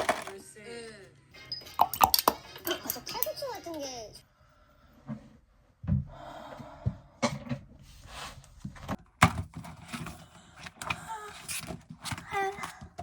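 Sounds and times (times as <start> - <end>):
objects knocking and thudding: 0.0 - 0.4, 5.0 - 6.2, 8.6 - 13.0.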